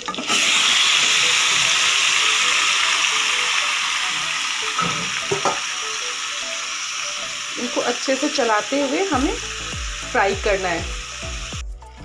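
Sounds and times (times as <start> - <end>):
chicken sizzling in a pan: 0.0 - 11.6.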